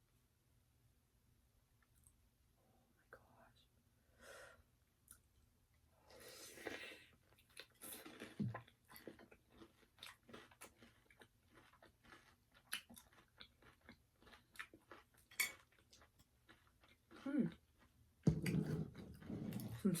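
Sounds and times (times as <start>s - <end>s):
crispy chicken crunching: 6.7s - 17.9s.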